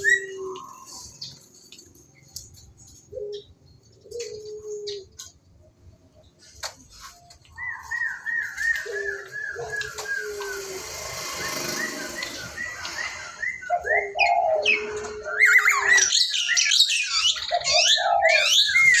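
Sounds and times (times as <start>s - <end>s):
starling singing: 7.7s - 19.0s.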